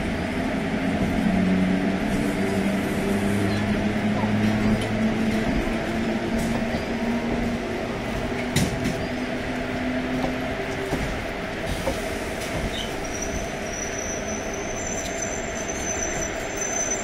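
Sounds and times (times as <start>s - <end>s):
train wheels rumbling: 0.0s - 17.0s
high wheel squeal: 12.7s - 17.0s.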